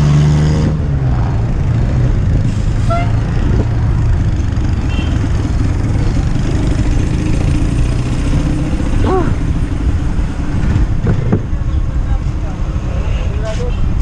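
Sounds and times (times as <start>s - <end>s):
wind rumble: 0.7s - 13.1s
bicycle road noise: 0.8s - 14.0s.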